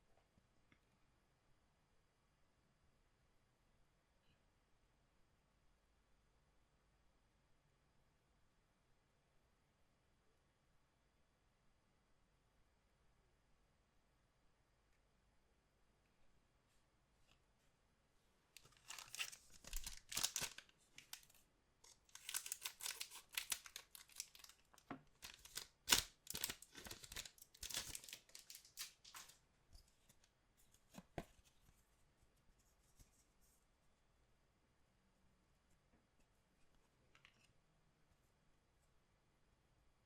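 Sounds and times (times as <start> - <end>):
wrapper tearing and crinkling: 18.6 - 29.4.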